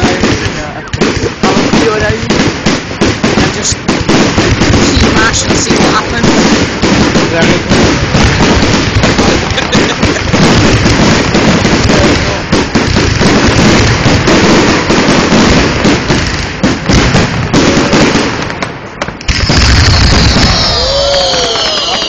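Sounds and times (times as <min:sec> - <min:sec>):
fireworks bangs and crackling: 0:00.0 - 0:22.0.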